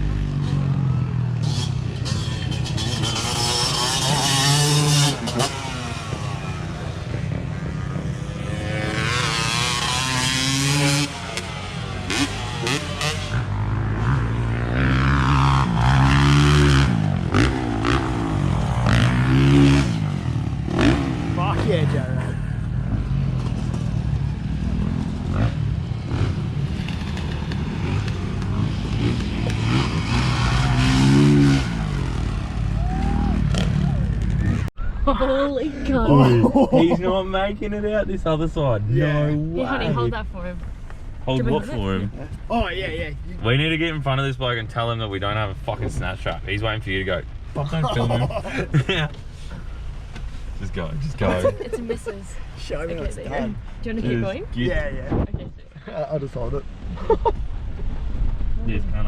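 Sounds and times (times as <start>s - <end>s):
vehicle engine revving: 0.0s - 34.8s.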